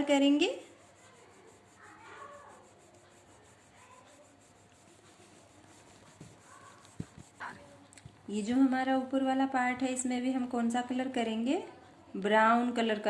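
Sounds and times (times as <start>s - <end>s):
colouring stick rubbing on paper: 0.0s - 7.9s.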